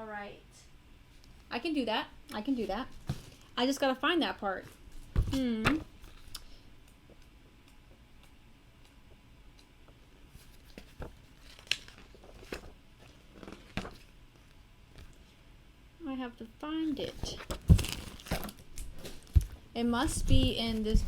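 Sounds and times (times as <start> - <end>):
packaging crinkling: 10.6 - 14.1, 17.5 - 19.6.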